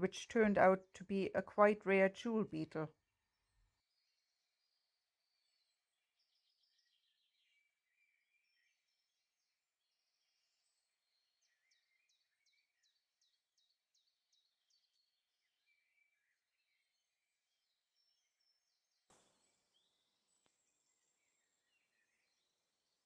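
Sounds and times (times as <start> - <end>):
faint birds chirping and warbling: 3.2 - 23.0.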